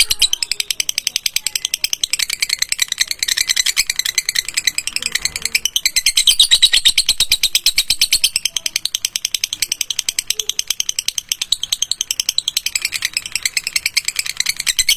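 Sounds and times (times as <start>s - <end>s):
canary trilling: 0.0s - 14.9s.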